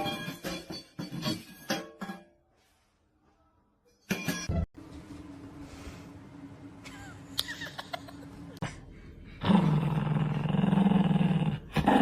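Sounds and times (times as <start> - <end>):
animal growling loudly: 9.4 - 12.0.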